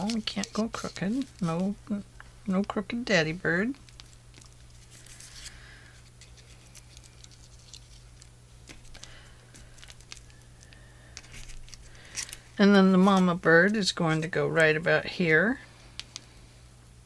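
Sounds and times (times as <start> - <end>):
paper rustling: 0.0 - 1.8, 3.8 - 13.8.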